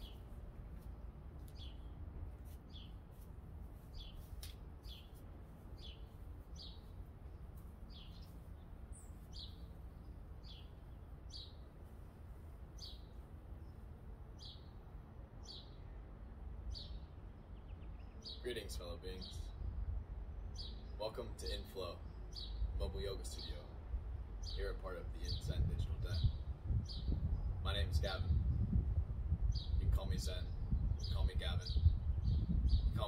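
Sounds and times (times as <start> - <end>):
small bird chirping: 0.0 - 0.4, 2.7 - 3.2, 3.8 - 11.7, 12.7 - 14.8.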